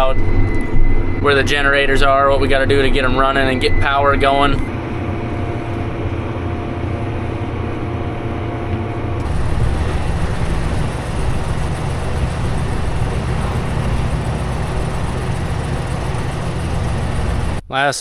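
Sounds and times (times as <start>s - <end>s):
tractor engine running: 9.2s - 17.7s.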